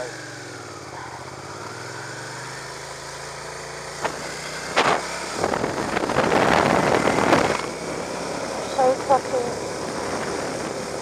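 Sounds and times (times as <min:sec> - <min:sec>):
motorcycle engine: 0:00.0 - 0:11.0
wind noise on microphone: 0:04.0 - 0:08.6, 0:09.6 - 0:11.0.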